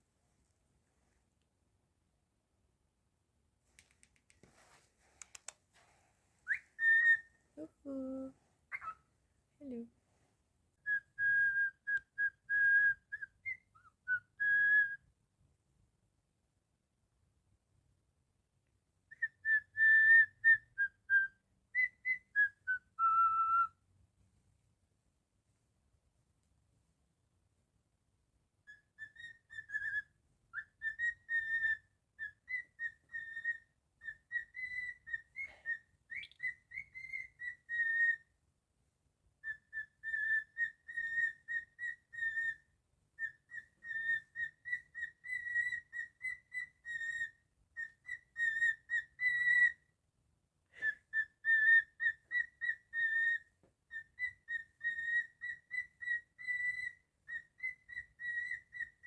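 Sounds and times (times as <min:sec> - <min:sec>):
cockatiel whistling: 0:06.5 - 0:07.3, 0:08.7 - 0:09.0, 0:10.8 - 0:15.0, 0:19.1 - 0:23.8, 0:28.7 - 0:38.3, 0:39.4 - 0:49.8, 0:50.8 - 0:59.0.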